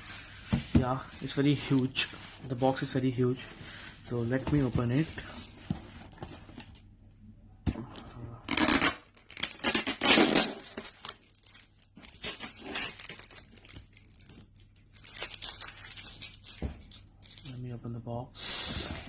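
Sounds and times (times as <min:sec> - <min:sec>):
packaging tearing and crinkling: 0:08.5 - 0:17.6.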